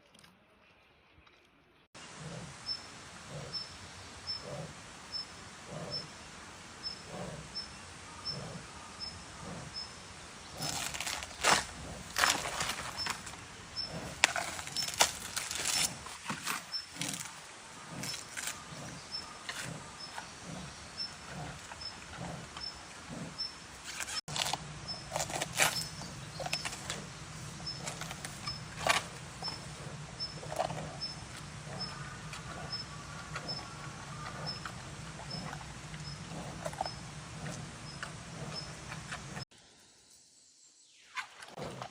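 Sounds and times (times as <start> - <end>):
panda chewing bamboo: 10.5 - 39.5.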